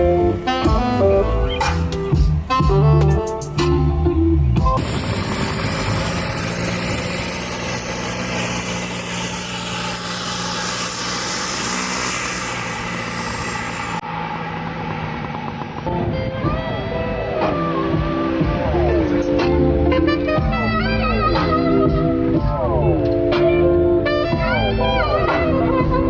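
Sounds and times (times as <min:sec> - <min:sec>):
diesel engine running: 0:00.0 - 0:19.5
road and wind noise: 0:00.0 - 0:26.0.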